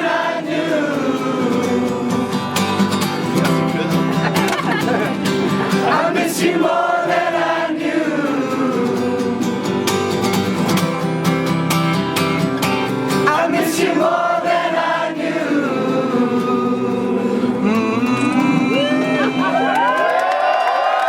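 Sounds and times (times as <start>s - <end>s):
wordless singing voices: 0.0s - 2.8s, 4.8s - 10.0s, 13.1s - 19.7s
acoustic guitar: 0.0s - 20.0s.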